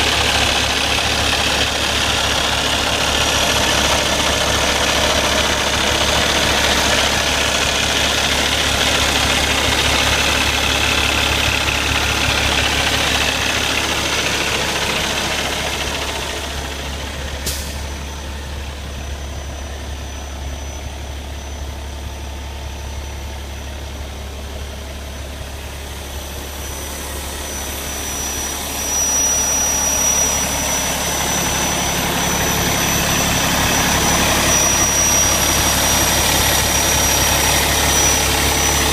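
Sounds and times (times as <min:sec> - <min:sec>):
diesel truck engine idling: 0:00.0 - 0:38.9
thin high whine: 0:25.6 - 0:38.9.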